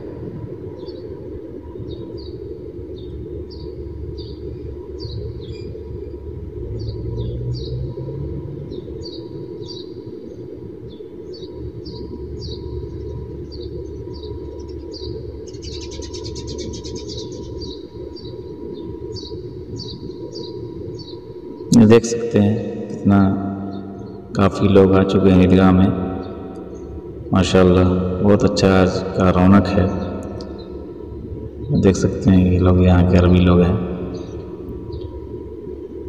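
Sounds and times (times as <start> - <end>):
small bird chirping: 13.5 - 18.3.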